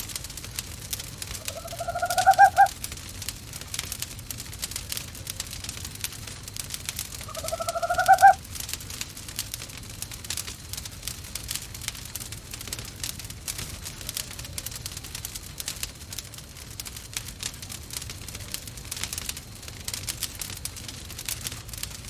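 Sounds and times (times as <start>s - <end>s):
wood fire crackling: 0.0s - 22.0s
owl call: 1.3s - 2.8s, 7.2s - 8.4s.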